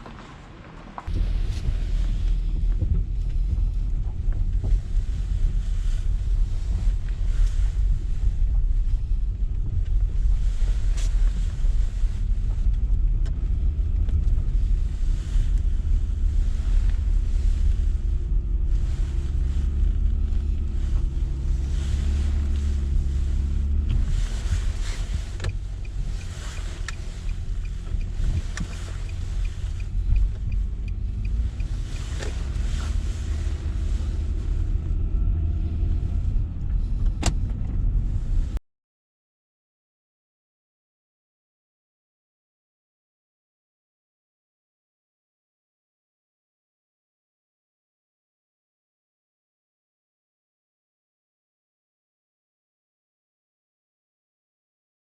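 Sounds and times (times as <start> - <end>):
faint engine hum: 0.0 - 38.6
vehicle rumble: 0.0 - 38.6
faint regular ticking: 24.6 - 33.6.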